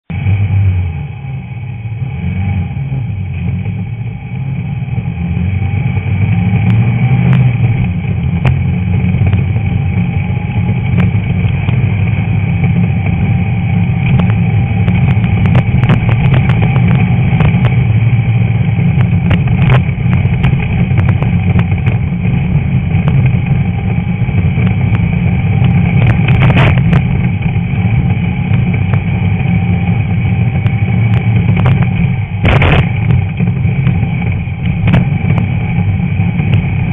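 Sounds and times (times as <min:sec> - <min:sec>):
car engine running hard: 0:00.0 - 0:36.9
sharp engine knocks: 0:30.6 - 0:35.6.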